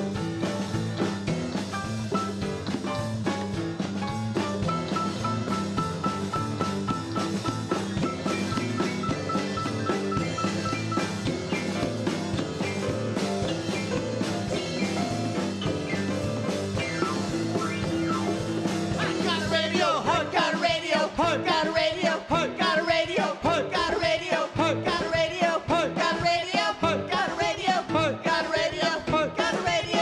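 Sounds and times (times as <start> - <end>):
band playing acoustic pop: 0.0 - 30.0
person singing: 18.9 - 30.0.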